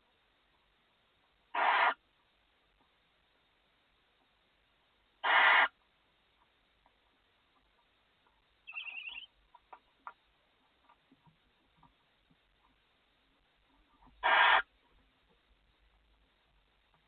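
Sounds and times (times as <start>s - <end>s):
owl chittering call: 1.5s - 2.0s, 5.2s - 5.8s, 8.6s - 9.3s, 14.2s - 14.7s
owl hissing: 1.5s - 2.0s, 5.2s - 5.8s, 8.7s - 9.3s, 14.2s - 14.7s
faint clicks and scratches: 5.8s - 8.6s, 9.3s - 17.0s.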